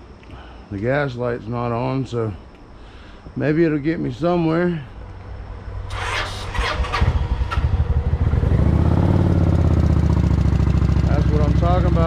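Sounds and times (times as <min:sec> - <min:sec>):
motorcycle engine cranking and idling: 0:05.8 - 0:12.0.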